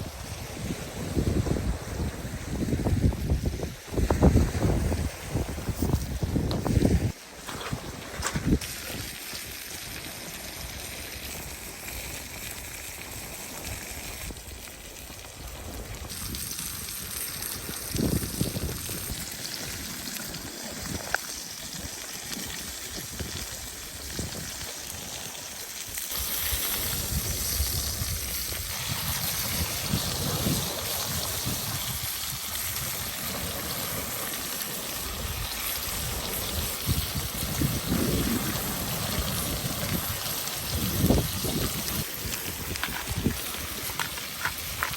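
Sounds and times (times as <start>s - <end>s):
steak sizzling in a pan: 16.1s - 44.9s.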